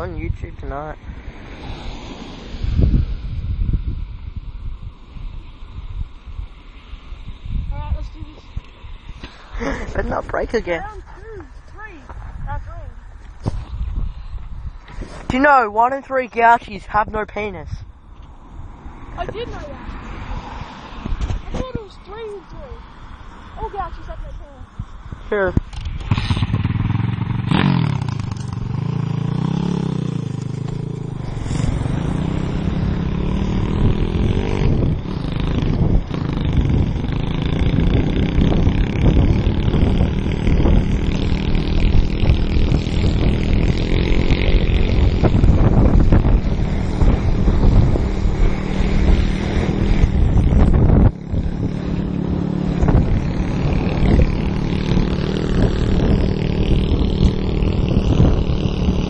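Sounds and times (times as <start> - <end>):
small motorbike engine revving: 25.7 - 59.0.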